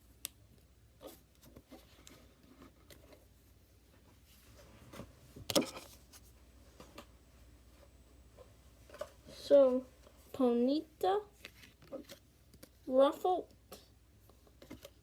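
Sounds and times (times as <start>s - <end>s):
cards rustling and sliding: 4.9s - 7.1s, 11.4s - 12.8s.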